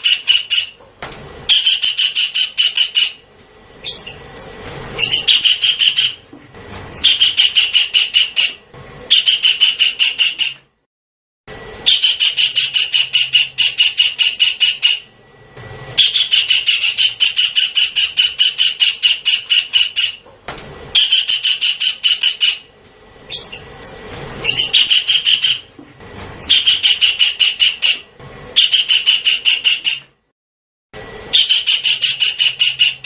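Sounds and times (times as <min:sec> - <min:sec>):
kingfisher rattling call: 0:00.0 - 0:00.8, 0:23.3 - 0:25.6
bird squealing notes: 0:06.9 - 0:10.6, 0:11.8 - 0:15.1, 0:16.0 - 0:20.2, 0:23.3 - 0:25.7.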